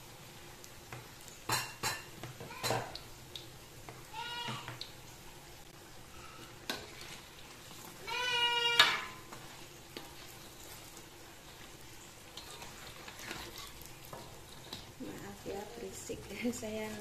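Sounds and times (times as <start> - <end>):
food sizzling in hot oil: 0.0 - 17.0
child wailing cry: 2.4 - 2.9, 4.1 - 4.7, 8.0 - 9.2.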